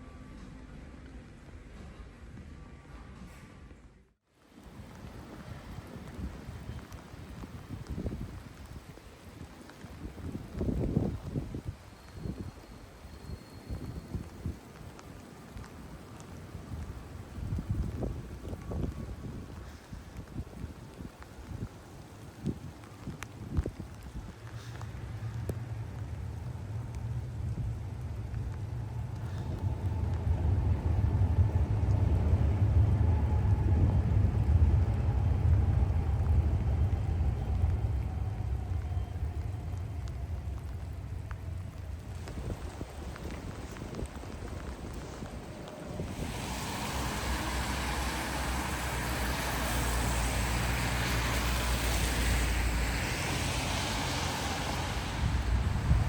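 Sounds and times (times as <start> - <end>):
low rumble: 22.6 - 56.0
steady rushing: 23.7 - 56.0.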